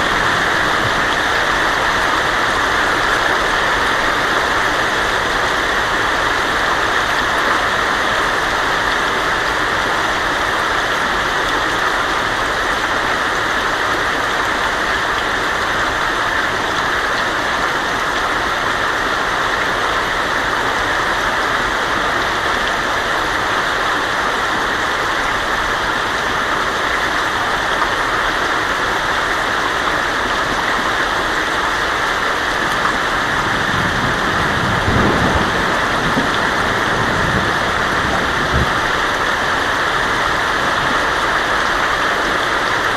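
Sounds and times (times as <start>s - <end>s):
heavy rain on a tin roof: 0.0s - 42.9s
thunder rumble: 33.2s - 39.2s.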